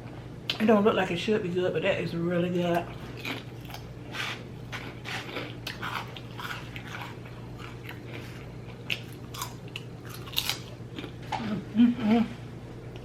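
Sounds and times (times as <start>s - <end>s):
close-up chewing with mouth sounds: 2.7s - 11.4s.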